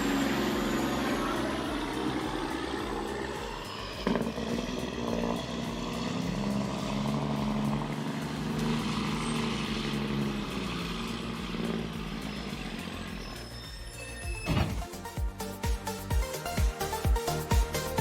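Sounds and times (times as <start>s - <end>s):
heavy truck engine running: 0.0s - 15.6s.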